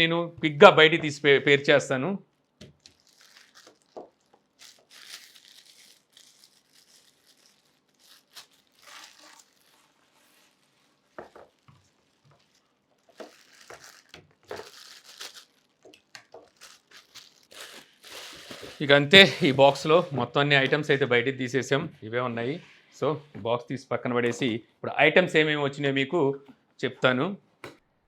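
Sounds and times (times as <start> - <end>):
packaging crinkling and rustling: 2.4 - 20.8.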